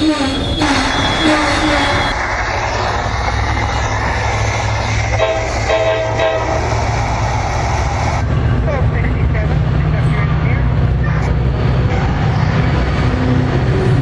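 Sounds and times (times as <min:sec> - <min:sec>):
two-part train horn: 0:00.0 - 0:02.2, 0:05.1 - 0:06.7
train wheels rumbling on rail: 0:00.0 - 0:14.0.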